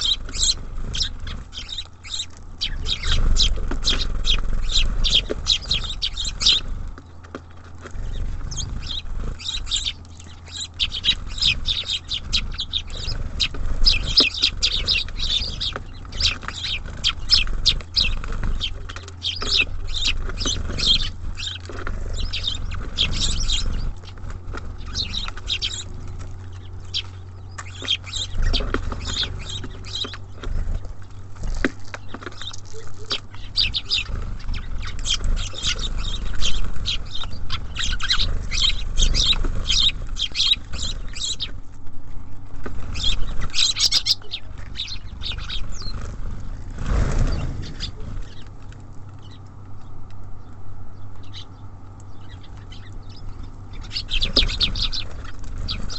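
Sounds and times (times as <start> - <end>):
songbirds chirping: 0.0 - 55.9
steady low hum: 0.0 - 55.9.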